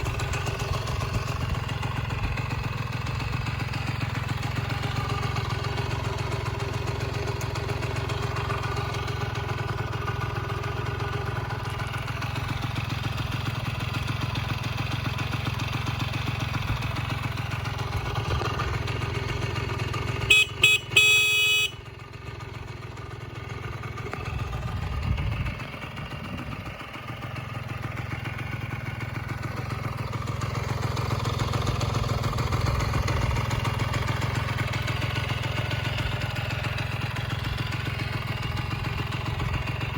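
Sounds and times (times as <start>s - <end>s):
moped engine idling: 0.0s - 39.9s
short horn beeps: 20.2s - 21.9s.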